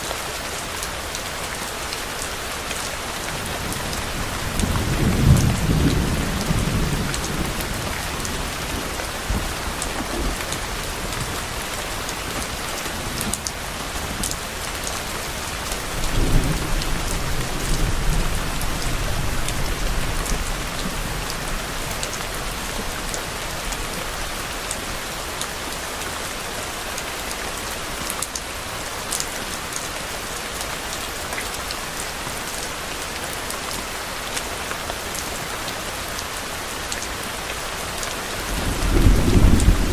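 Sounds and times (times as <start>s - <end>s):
heavy rain falling: 0.0s - 39.9s
distant thunder rolling: 38.5s - 39.9s.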